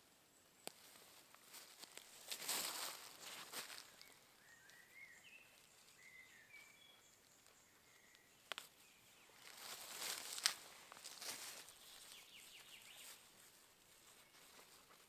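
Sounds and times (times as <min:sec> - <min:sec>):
rustling of handling or stepping: 0:00.6 - 0:04.8, 0:08.5 - 0:15.0.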